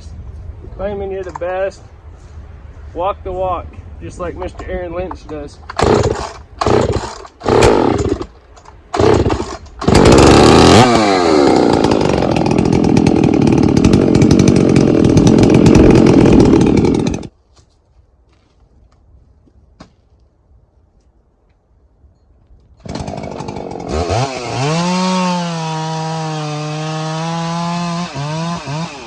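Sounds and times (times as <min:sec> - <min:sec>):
gas chainsaw running: 0:05.7 - 0:08.3, 0:08.9 - 0:17.3, 0:22.8 - 0:29.0.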